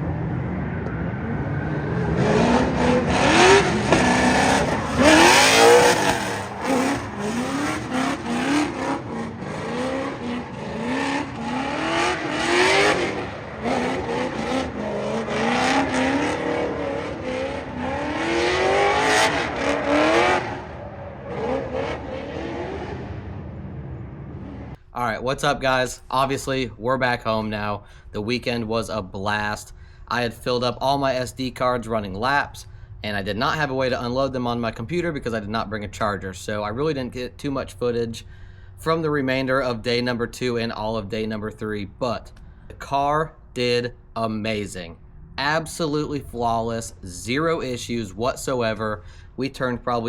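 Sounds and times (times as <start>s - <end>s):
car engine revving hard: 0.0s - 24.8s.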